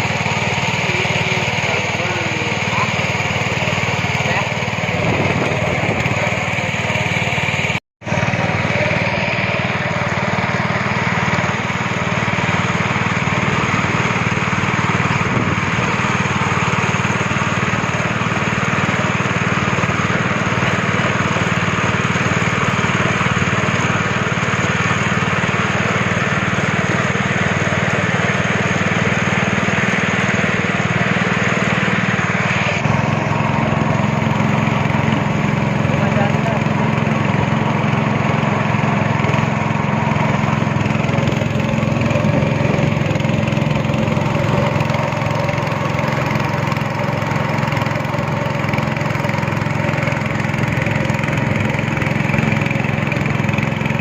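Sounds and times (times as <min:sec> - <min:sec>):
speedboat engine running: 0:00.0 - 0:54.0.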